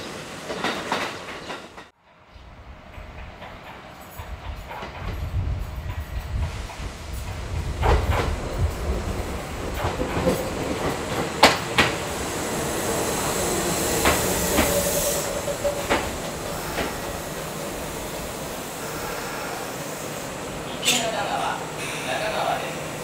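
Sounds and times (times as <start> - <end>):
train wheels clacking over rail joints: 2.9 - 12.7, 13.5 - 18.6.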